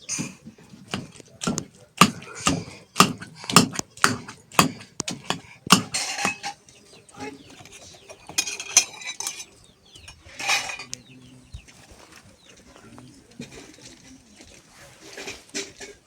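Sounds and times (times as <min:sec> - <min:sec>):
clattering and clinks: 0:00.0 - 0:06.6, 0:07.4 - 0:11.0
sharp knocks: 0:00.2 - 0:06.6.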